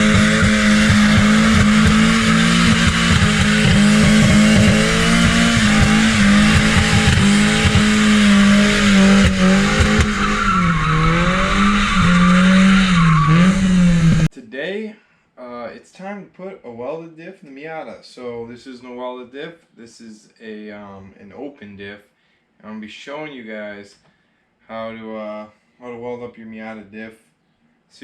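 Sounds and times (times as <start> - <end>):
tyres screeching: 0.0 - 14.1
car engine at high revs: 0.0 - 14.3.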